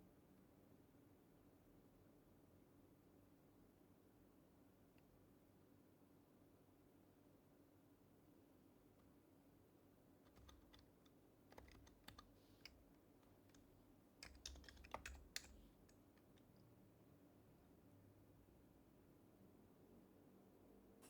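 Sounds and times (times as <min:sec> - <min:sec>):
faint keyboard typing: 0:10.2 - 0:16.7.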